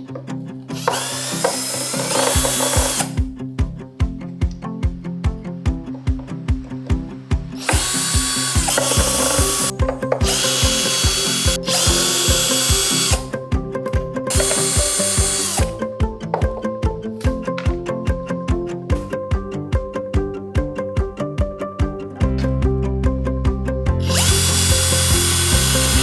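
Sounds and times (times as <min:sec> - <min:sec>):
power drill running: 0:00.8 - 0:03.3, 0:07.6 - 0:13.4, 0:14.3 - 0:15.8, 0:24.0 - 0:26.0
background music with a beat: 0:00.8 - 0:26.0.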